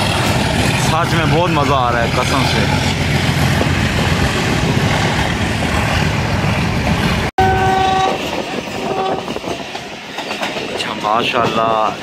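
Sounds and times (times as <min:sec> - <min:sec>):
train wheels rumbling: 0:00.0 - 0:12.0
train horn: 0:07.4 - 0:08.2, 0:08.8 - 0:09.4.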